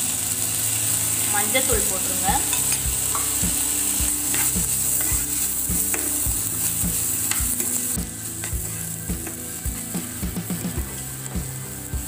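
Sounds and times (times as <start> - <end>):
onions sizzling in a pan: 0.0 - 12.0
spoon scraping a pan: 2.4 - 11.1.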